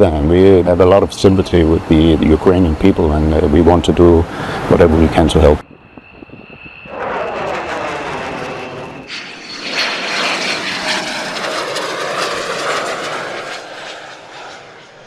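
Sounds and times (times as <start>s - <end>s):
jet aircraft passing: 0.0s - 15.0s
high-pitched whine: 5.6s - 15.0s.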